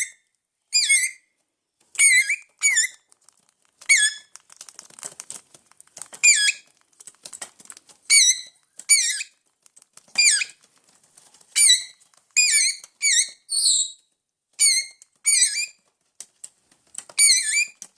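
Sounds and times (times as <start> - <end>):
parrots calling: 11.6 - 13.8, 14.6 - 15.7.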